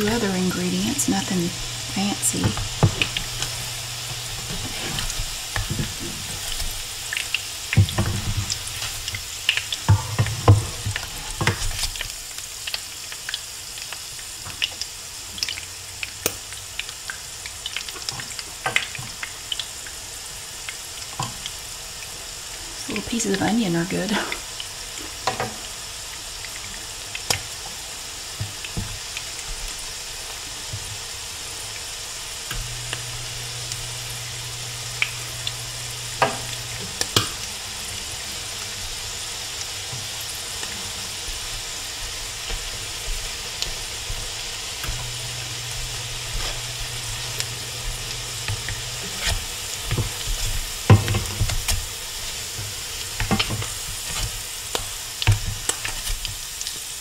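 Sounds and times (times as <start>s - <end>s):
spatulas scraping pan: 0.0s - 7.0s, 42.2s - 54.4s
patties sizzling in oil: 0.0s - 57.0s
oil popping: 1.5s - 20.0s, 32.4s - 56.7s.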